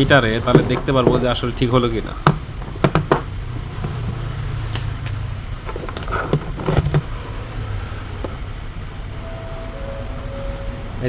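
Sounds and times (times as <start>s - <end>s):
light clicks and knocks: 0.0s - 7.4s
low background hum: 0.0s - 11.0s.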